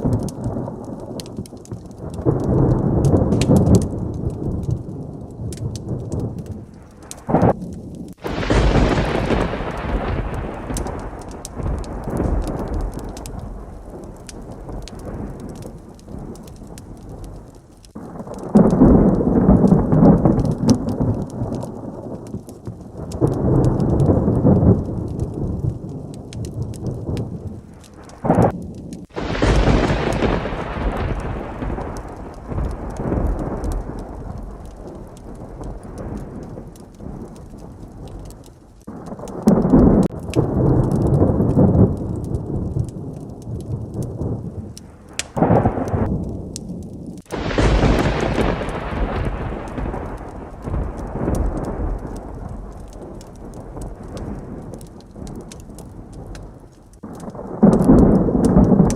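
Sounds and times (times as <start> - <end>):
heavy rain: 0.0 - 58.9
sharp thunder crack: 0.0 - 58.9
thunder rolling: 0.0 - 58.9.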